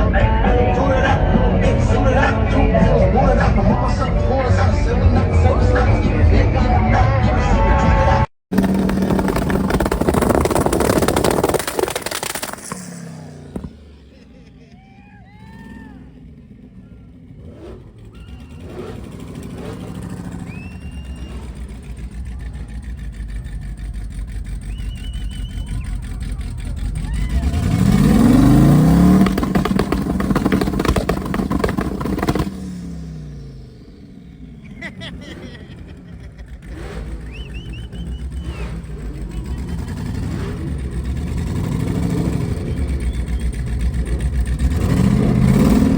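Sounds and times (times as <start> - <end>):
music: 0.0 - 8.2
car engine running: 8.5 - 45.9.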